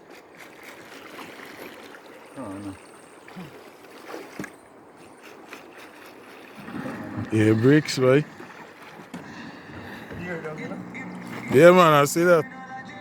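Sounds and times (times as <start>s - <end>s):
river water rushing: 0.0s - 13.0s
person's voice: 10.1s - 12.6s.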